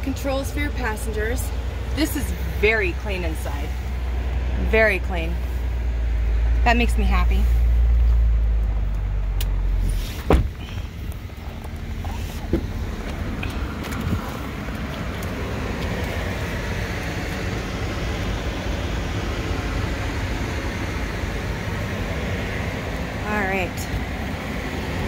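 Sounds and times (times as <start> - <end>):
car engine idling: 0.0 - 25.0
sharp thud: 10.1 - 10.6.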